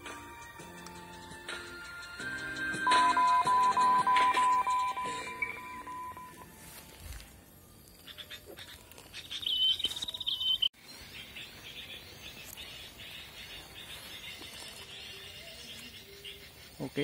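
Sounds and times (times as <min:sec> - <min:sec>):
faint repeated bird chirps: 0:07.9 - 0:17.0.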